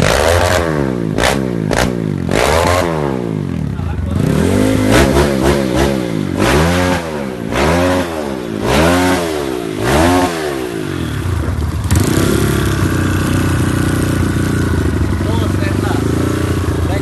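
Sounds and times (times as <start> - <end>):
motorcycle engine revving: 0.0 - 17.0
motorcycle engine idling: 3.1 - 6.4, 10.5 - 17.0.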